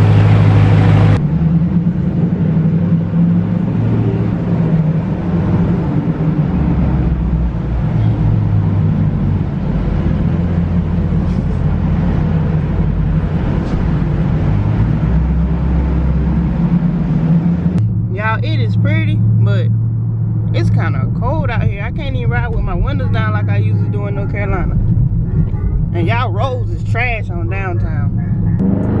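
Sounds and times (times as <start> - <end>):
car engine cruising with exhaust drone: 0.0 - 29.0.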